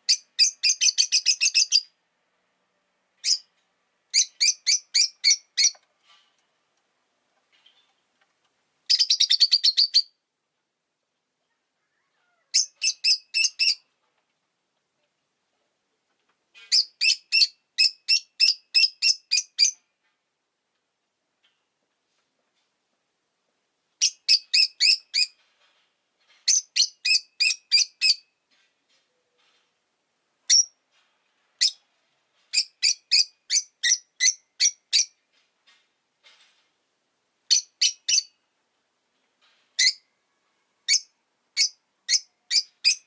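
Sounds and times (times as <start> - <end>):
lovebird chirping: 0.0 - 2.0, 3.2 - 3.5, 4.1 - 5.8, 8.9 - 10.2, 12.2 - 13.9, 16.6 - 19.8, 24.0 - 25.4, 26.4 - 28.3, 30.5 - 30.8, 31.6 - 31.9, 32.5 - 35.2, 37.5 - 38.4, 39.8 - 40.1, 40.8 - 43.0.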